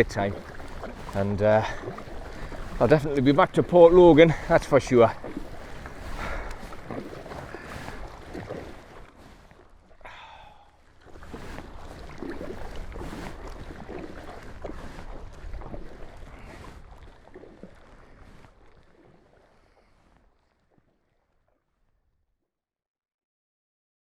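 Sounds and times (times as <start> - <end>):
water splashing and lapping: 0.0 - 22.0
wind buffeting microphone: 11.1 - 18.6.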